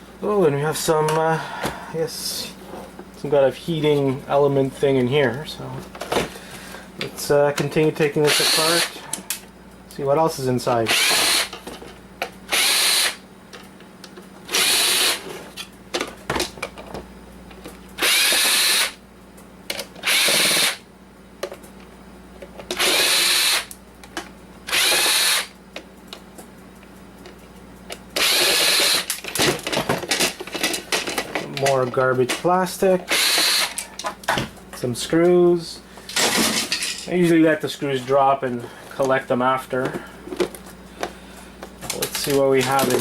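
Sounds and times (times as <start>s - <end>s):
power drill motor whining: 8.2s - 9.0s, 10.9s - 11.5s, 12.5s - 13.2s, 14.5s - 15.3s, 18.0s - 19.0s, 20.0s - 20.8s, 22.8s - 23.7s, 24.7s - 25.5s, 28.2s - 29.2s, 33.1s - 33.8s.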